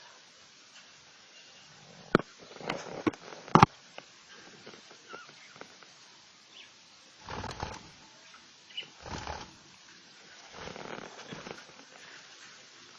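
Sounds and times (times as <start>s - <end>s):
rustling noise: 1.8s - 6.0s, 7.2s - 8.0s, 9.0s - 12.9s.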